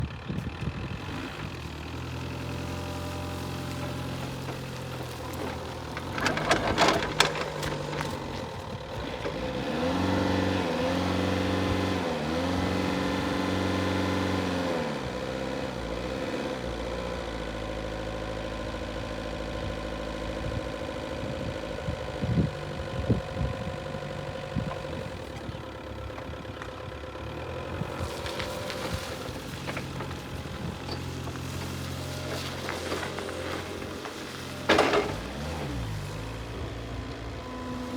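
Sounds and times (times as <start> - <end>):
forklift engine idling: 0.0 - 11.8, 16.8 - 37.9
clanks and knocks: 4.4 - 9.4, 34.6 - 35.5.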